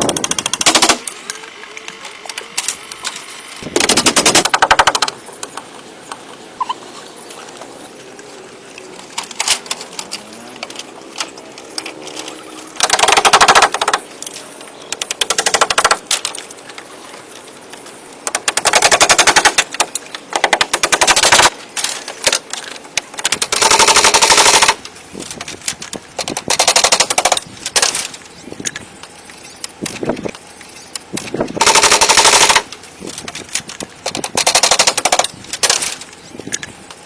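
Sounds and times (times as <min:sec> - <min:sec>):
power tool rattling on wood: 0:00.0 - 0:01.2, 0:02.6 - 0:05.5, 0:09.1 - 0:14.2, 0:15.0 - 0:16.8, 0:18.2 - 0:28.8, 0:29.4 - 0:36.7.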